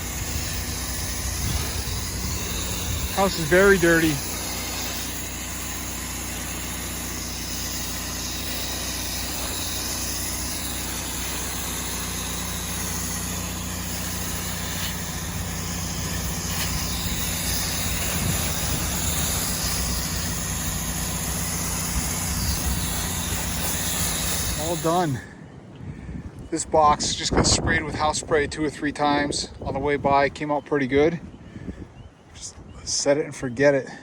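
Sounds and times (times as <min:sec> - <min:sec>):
water spray hissing: 0:00.0 - 0:25.2
pressure washer engine running: 0:00.0 - 0:25.3.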